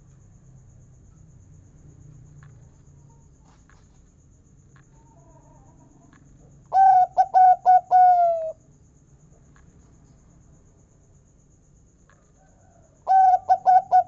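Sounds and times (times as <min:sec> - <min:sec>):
dove cooing: 0:06.7 - 0:08.6, 0:13.0 - 0:14.0.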